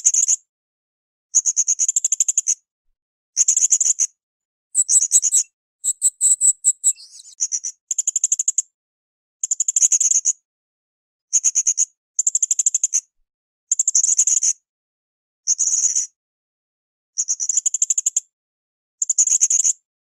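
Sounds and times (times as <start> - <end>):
parrot high-pitched trills: 4.8 - 7.3.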